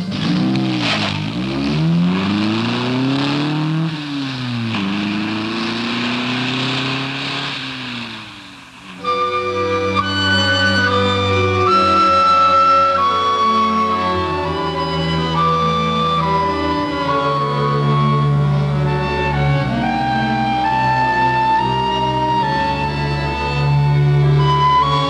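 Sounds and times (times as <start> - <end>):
sports car engine accelerating: 0.0 - 8.8
flute-led music: 8.9 - 25.0.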